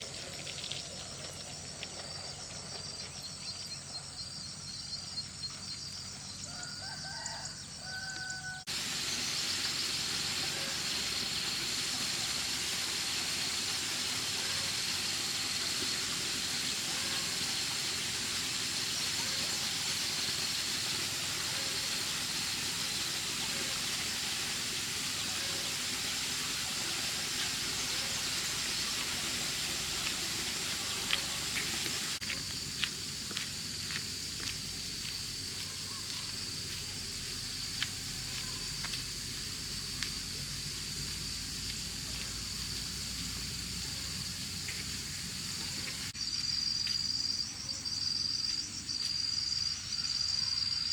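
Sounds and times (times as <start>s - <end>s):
crickets chirping: 0.0s - 14.0s, 14.9s - 50.9s
steady hiss: 8.7s - 46.2s.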